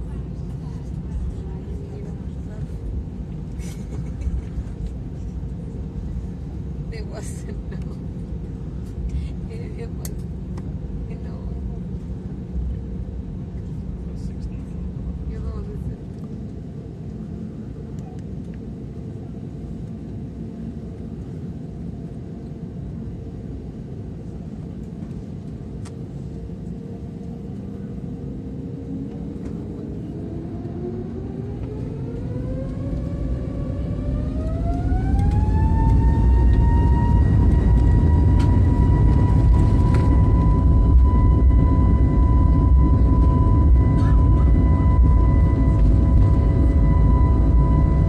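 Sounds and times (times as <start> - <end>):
jet engine rumble in cabin: 0.0 - 48.0
jet engine whine rising: 16.0 - 48.0.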